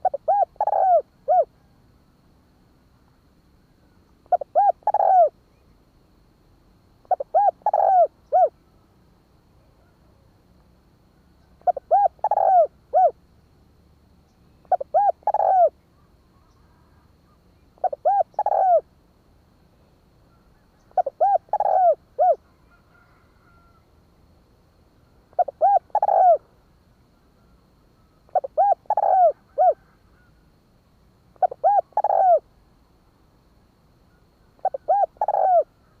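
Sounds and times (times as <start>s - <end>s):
dove cooing: 0.0s - 1.7s, 4.2s - 5.4s, 7.0s - 8.6s, 11.5s - 13.2s, 14.6s - 15.8s, 17.8s - 18.9s, 20.3s - 23.8s, 25.3s - 26.5s, 28.0s - 30.4s, 31.4s - 32.5s, 34.2s - 36.0s.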